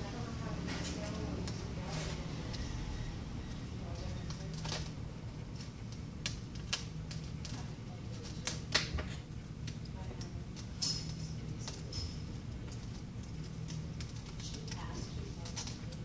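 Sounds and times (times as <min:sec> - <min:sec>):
faint background chatter: 0:00.0 - 0:16.0
small tools clicking and tapping: 0:05.6 - 0:16.0.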